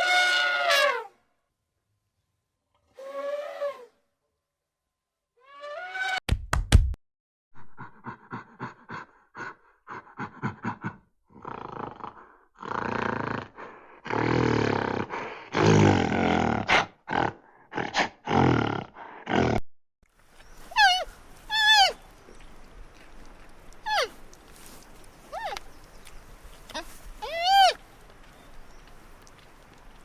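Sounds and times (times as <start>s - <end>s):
large animal calling: 20.7s - 22.0s, 26.7s - 27.8s.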